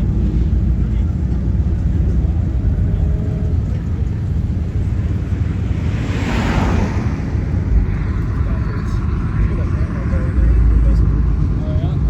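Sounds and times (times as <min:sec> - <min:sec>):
car engines rumbling: 0:00.0 - 0:12.0
rush of noise: 0:03.9 - 0:12.0.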